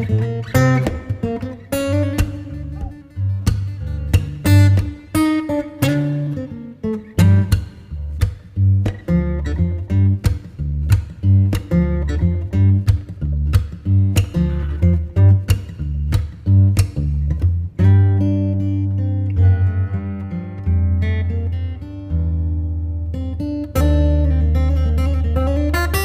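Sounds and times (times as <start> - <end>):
acoustic guitar music with bass: 0.0 - 26.0.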